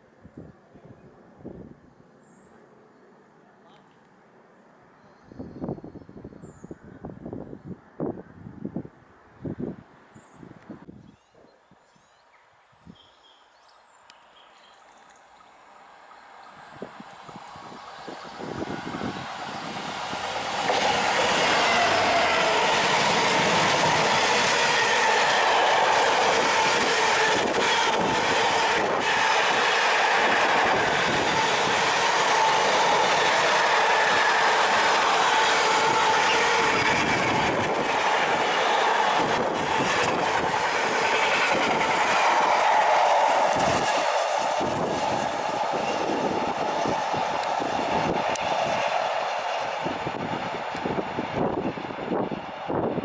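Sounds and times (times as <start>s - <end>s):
train wheels on rails: 16.5s - 53.0s.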